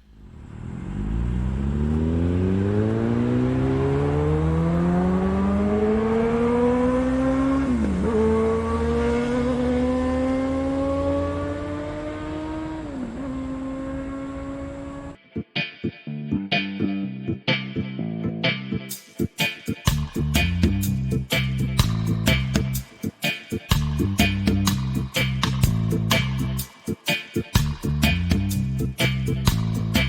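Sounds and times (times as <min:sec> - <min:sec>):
motorcycle engine accelerating: 0:00.0 - 0:15.2.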